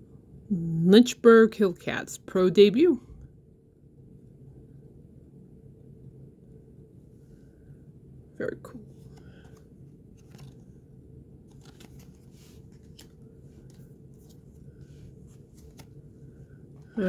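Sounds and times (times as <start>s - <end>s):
low room hum: 0.0s - 17.0s
cards rustling and clicking: 8.9s - 10.8s, 11.4s - 16.1s.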